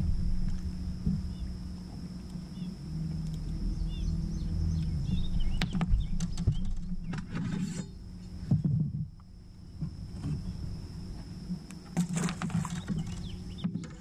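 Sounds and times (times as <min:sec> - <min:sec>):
low steady rumble: 0:00.0 - 0:14.0
small birds chirping: 0:01.2 - 0:07.3, 0:12.5 - 0:13.8.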